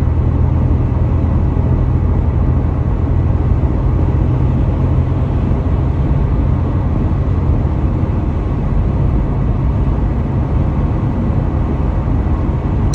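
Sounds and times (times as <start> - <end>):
car engine: 0.0 - 12.9
tyres rumbling on road: 0.0 - 12.9.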